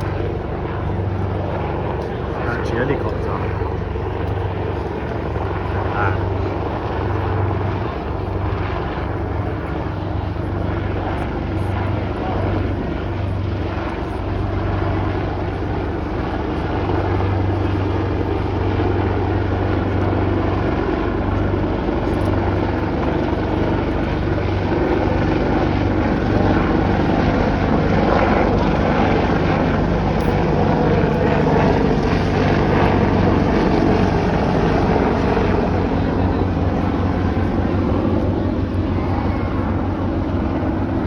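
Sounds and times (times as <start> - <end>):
helicopter rotor and engine: 0.0 - 41.0.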